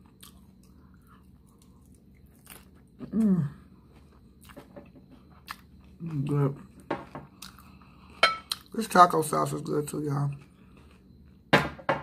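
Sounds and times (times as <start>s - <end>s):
crunchy chewing: 0.0s - 8.8s
person humming: 3.0s - 3.6s.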